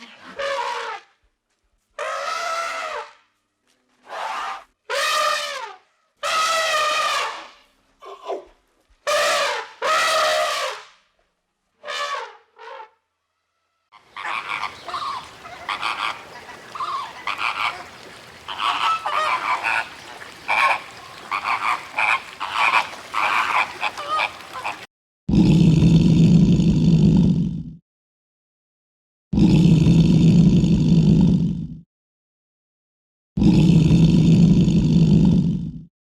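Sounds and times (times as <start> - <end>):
deep steady animal call: 13.9 - 27.7
short pitched animal calls: 14.0 - 24.9.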